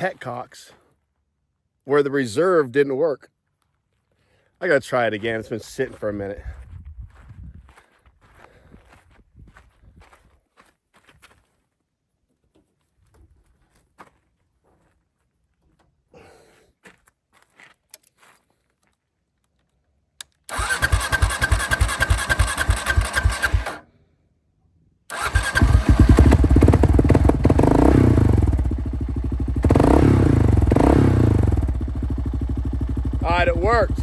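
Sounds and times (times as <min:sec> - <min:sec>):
motorcycle electric starter cranking: 0:20.5 - 0:23.8, 0:25.1 - 0:27.6
motorcycle engine running: 0:20.6 - 0:23.8, 0:25.2 - 0:34.0.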